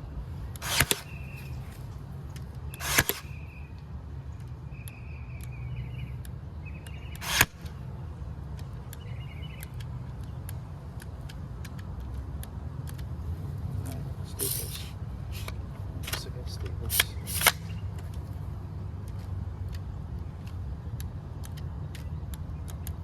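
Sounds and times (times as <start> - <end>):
short whirring: 0.5 - 3.8, 7.1 - 7.8, 14.3 - 18.2
staple gun firing: 0.6 - 1.9, 2.7 - 3.4, 7.2 - 7.8, 14.5 - 18.2.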